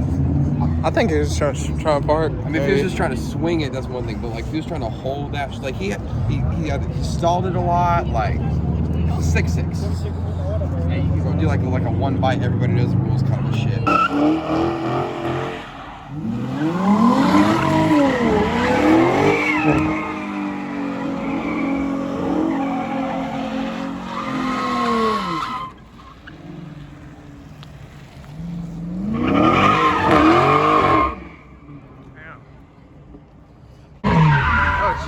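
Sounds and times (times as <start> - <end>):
tyres skidding and squealing: 0.0 - 35.0
car engine revving hard: 10.8 - 25.8, 28.4 - 31.4.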